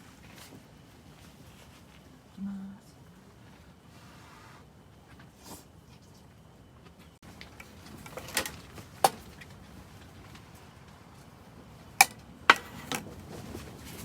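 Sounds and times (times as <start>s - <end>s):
objects knocking set down: 12.0s - 13.2s.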